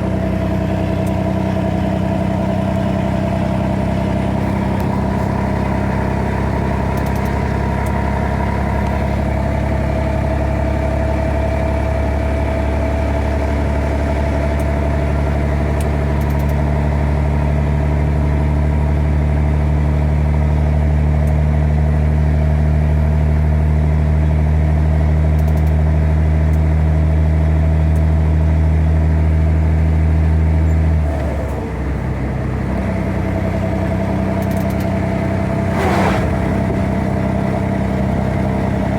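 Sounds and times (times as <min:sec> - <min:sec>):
truck diesel engine running: 0:00.0 - 0:38.9.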